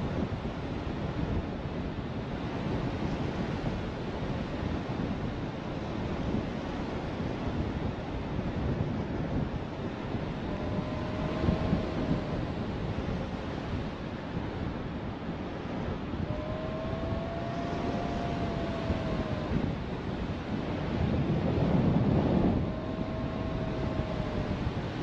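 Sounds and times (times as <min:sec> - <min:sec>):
wind buffeting the microphone: 0:00.0 - 0:25.0.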